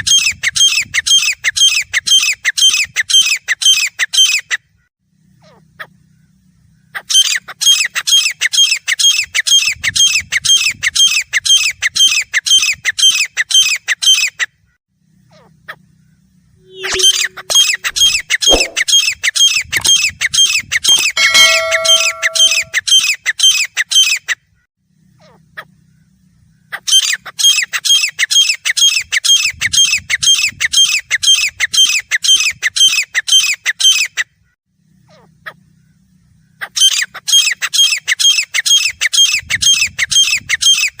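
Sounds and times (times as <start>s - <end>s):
francolin calling shrill notes: 16.6s - 18.8s, 20.9s - 22.8s.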